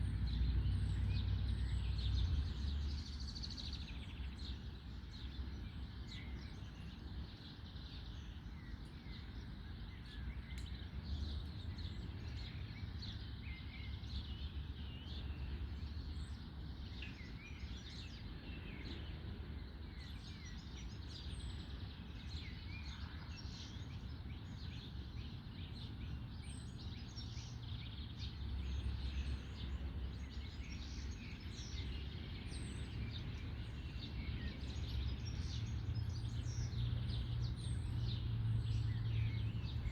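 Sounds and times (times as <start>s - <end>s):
low background rumble: 0.0s - 6.6s
birds singing: 0.0s - 39.9s.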